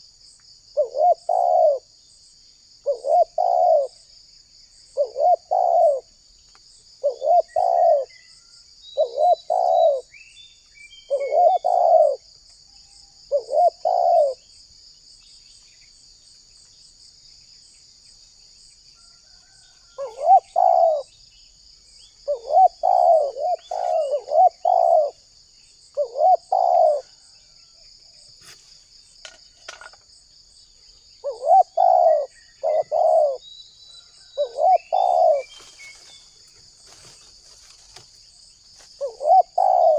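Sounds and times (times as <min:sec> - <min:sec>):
dove cooing: 0:00.8 - 0:01.9, 0:02.8 - 0:04.0, 0:05.0 - 0:06.1, 0:07.0 - 0:08.1, 0:09.0 - 0:10.1, 0:11.1 - 0:12.3, 0:13.3 - 0:14.4, 0:20.0 - 0:21.1, 0:22.2 - 0:25.3, 0:25.9 - 0:27.4, 0:31.2 - 0:33.4, 0:34.2 - 0:36.2, 0:39.0 - 0:39.9
small birds chirping: 0:00.8 - 0:39.9.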